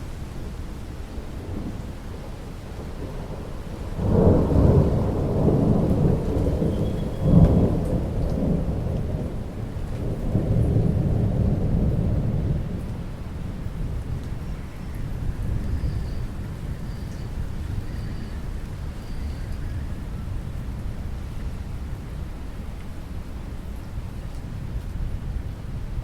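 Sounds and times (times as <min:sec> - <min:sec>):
rain falling: 0:00.0 - 0:26.0
thunder rumbling: 0:01.3 - 0:21.5.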